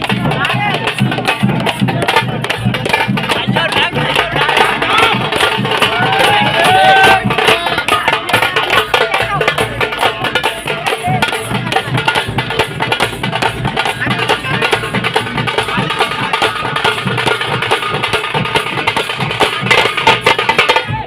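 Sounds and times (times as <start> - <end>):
group of drums beaten fast: 0.0 - 21.0.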